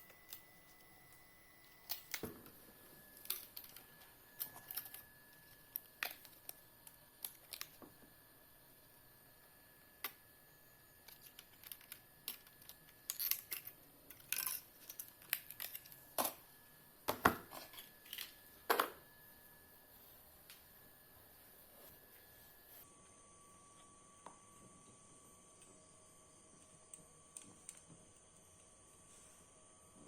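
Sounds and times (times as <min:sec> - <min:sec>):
small hard parts clicking and scraping: 0:03.2 - 0:07.8, 0:11.0 - 0:16.4.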